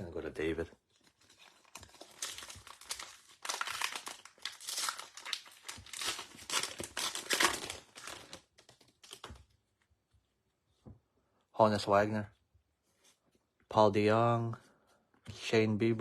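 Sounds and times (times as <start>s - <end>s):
wrapper tearing and crinkling: 0.9s - 9.4s.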